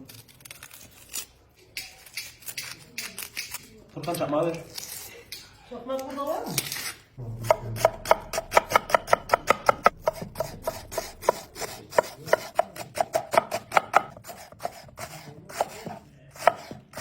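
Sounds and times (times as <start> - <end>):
knife chopping on cutting board: 7.4 - 17.0.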